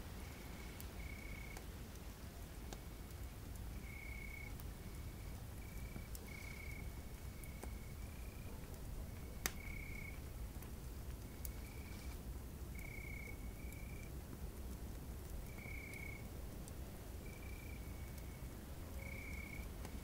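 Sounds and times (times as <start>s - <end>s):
campfire crackling and popping: 0.0s - 20.0s
crickets trilling: 15.5s - 16.3s, 17.2s - 19.7s.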